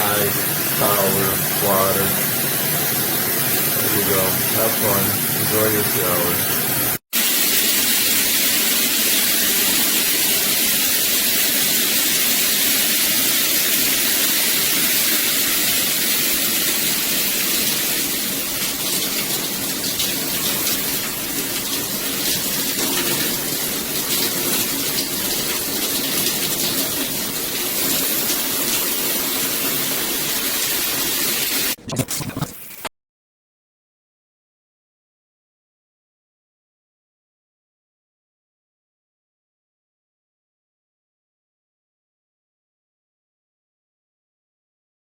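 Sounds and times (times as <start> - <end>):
shower spray hitting bathtub: 7.2 - 31.8.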